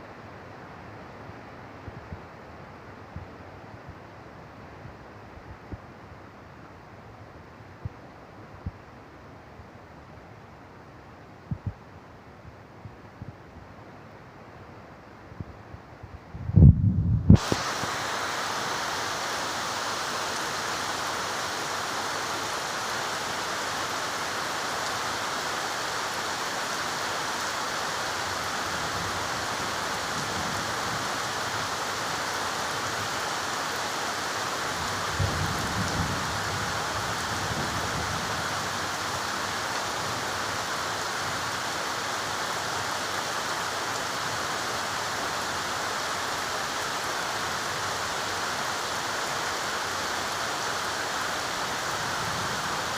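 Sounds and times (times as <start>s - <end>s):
heavy rain falling: 17.3s - 52.9s.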